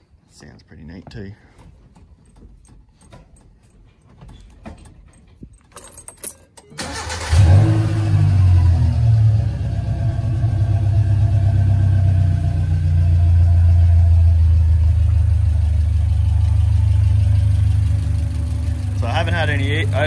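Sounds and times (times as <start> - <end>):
car engine idling: 6.8 - 20.0.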